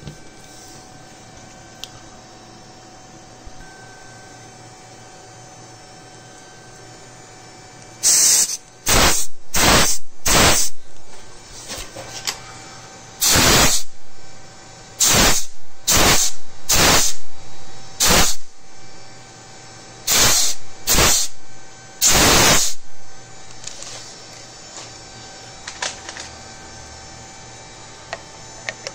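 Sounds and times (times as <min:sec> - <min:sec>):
faint steady hum: 0:00.0 - 0:28.9
compressed air hissing blasts: 0:08.0 - 0:10.8, 0:13.2 - 0:14.0, 0:15.0 - 0:17.3, 0:17.9 - 0:18.6, 0:20.0 - 0:22.8.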